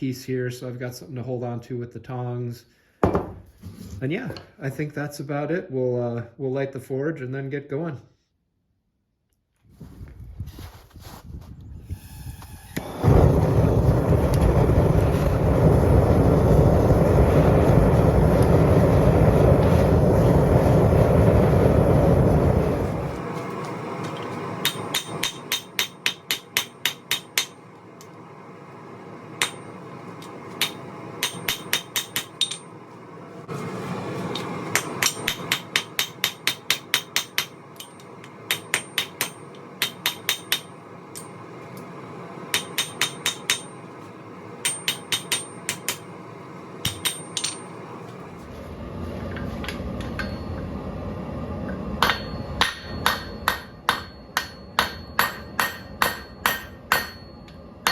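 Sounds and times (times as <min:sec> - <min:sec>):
forge rushing hum: 0:12.8 - 0:57.9
hammer striking steel on anvil: 0:24.6 - 0:27.7, 0:29.4 - 0:29.8, 0:30.5 - 0:32.8, 0:34.4 - 0:41.4, 0:42.5 - 0:43.9, 0:44.6 - 0:46.2, 0:46.8 - 0:47.8, 0:49.7 - 0:50.6, 0:52.0 - 0:57.9.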